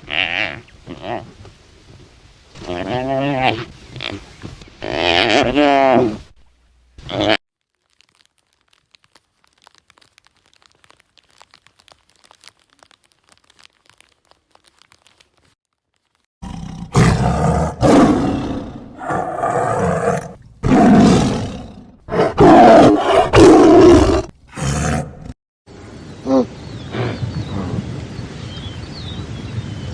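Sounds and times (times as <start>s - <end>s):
big cat roaring: 16.4s - 25.3s.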